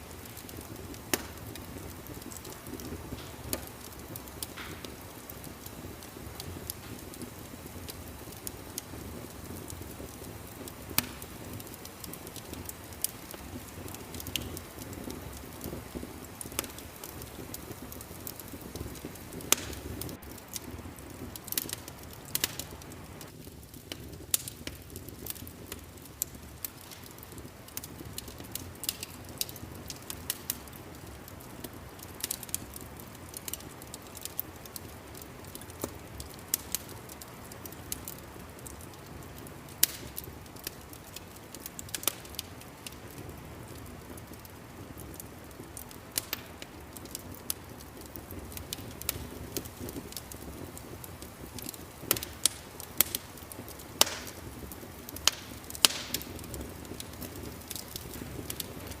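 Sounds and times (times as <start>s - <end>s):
fire pops and snaps: 0.0s - 59.0s
low rumble of burning: 0.0s - 59.0s.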